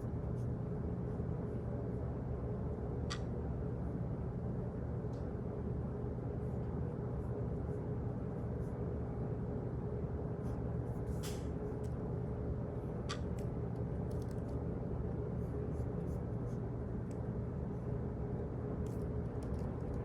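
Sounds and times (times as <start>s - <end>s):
low room hum: 0.0s - 20.0s
faint clicks and taps: 13.1s - 14.6s, 18.8s - 20.0s.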